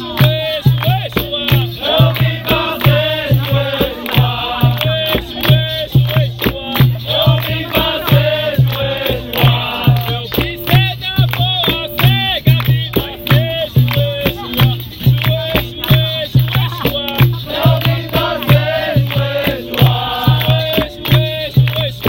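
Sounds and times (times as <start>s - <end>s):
group chanting: 0.0s - 10.4s, 16.7s - 22.0s
berimbaus and percussion rhythm: 0.0s - 22.0s.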